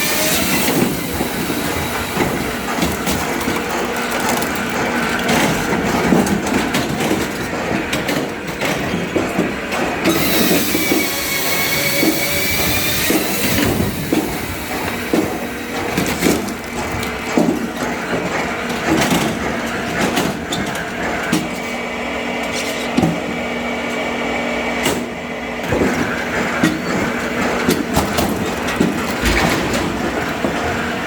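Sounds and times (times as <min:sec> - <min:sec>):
machine humming: 0:00.0 - 0:07.6
wood knocking and cracking: 0:02.1 - 0:07.3.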